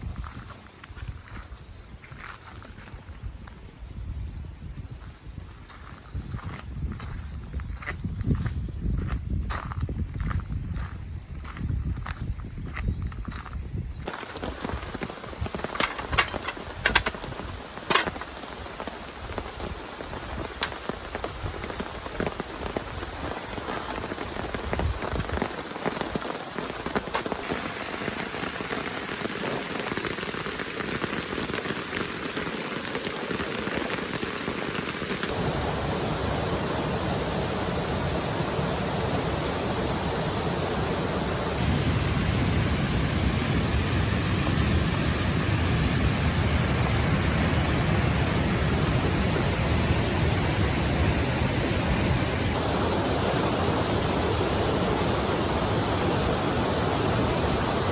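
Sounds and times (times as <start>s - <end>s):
heavy rain: 14.1s - 57.9s.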